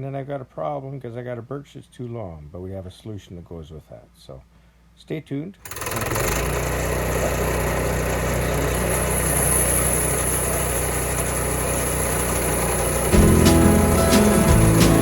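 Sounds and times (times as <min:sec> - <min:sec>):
engine running steadily: 0:05.7 - 0:15.0.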